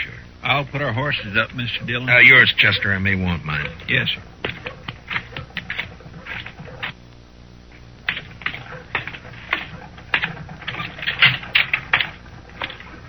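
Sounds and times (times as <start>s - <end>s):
clicking footsteps: 3.5s - 7.0s, 7.7s - 13.0s.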